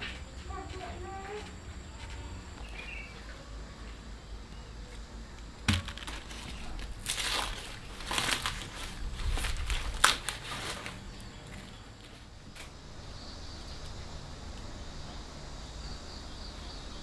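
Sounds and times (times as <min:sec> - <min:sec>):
dry corn husks crinkling and tearing: 0:05.8 - 0:12.8
corn stalk snapping: 0:09.4 - 0:10.8.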